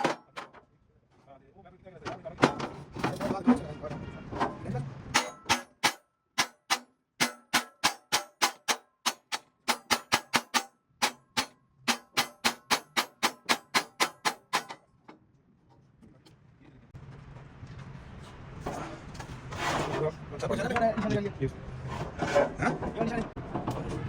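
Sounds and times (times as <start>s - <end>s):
hammer beating on metal: 5.2s - 14.8s.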